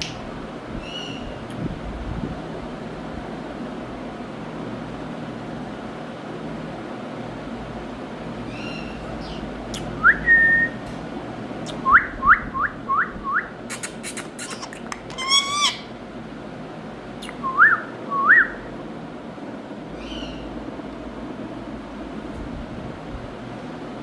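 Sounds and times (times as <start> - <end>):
harsh parrot call with clicks: 13.7 - 15.9
parrot whistling: 14.1 - 15.9.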